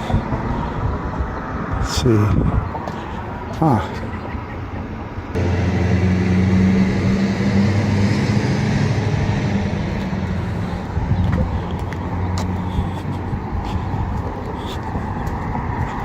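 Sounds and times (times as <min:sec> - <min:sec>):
vehicle engine running at low revs: 0:05.4 - 0:16.0.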